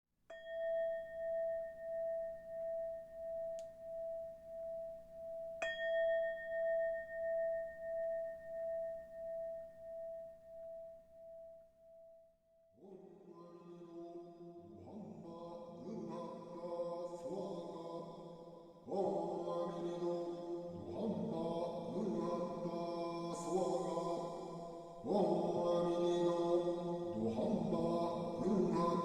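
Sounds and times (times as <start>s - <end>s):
bowl bell ringing: 0.3s - 12.2s
music: 0.3s - 12.8s.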